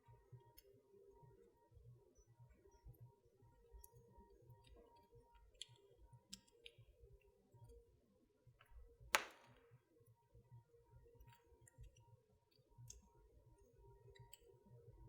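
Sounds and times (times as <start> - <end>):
wood fire crackling: 9.1 - 9.6
loud sharp pop of fire: 9.2 - 9.6.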